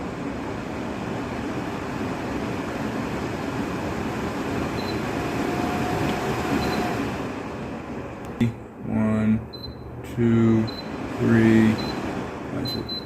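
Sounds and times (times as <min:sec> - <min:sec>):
air purifier fan running: 0:00.0 - 0:13.0
short faint beeps: 0:06.6 - 0:06.9, 0:09.5 - 0:09.9, 0:10.6 - 0:10.9, 0:11.8 - 0:12.0, 0:12.6 - 0:13.0.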